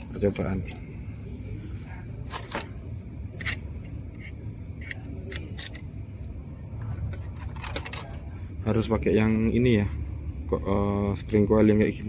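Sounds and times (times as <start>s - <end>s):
crickets trilling: 0.0s - 12.0s
clicks of small parts handled: 3.4s - 3.6s, 4.2s - 5.8s.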